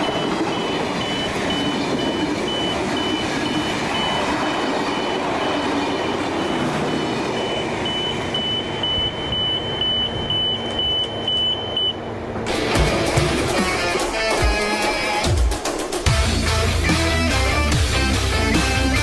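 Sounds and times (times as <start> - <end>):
high electronic beeps: 0.0 - 12.0
train carriages rolling on rails: 0.0 - 15.3.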